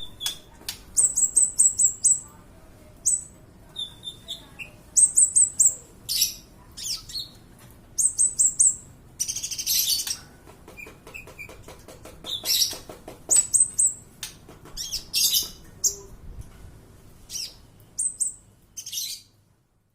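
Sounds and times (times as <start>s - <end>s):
sunbird singing high chirps: 0.0s - 2.3s, 3.0s - 7.4s, 8.0s - 10.2s, 17.3s - 19.3s
scratchy bird twittering: 8.0s - 10.2s, 12.2s - 14.0s, 14.8s - 16.0s, 17.3s - 19.3s.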